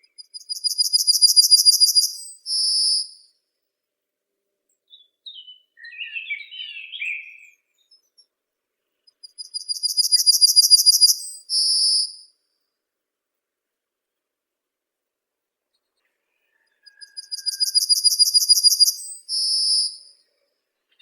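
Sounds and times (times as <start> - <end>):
songbirds singing: 4.7 - 8.3, 9.0 - 12.2, 15.8 - 21.0.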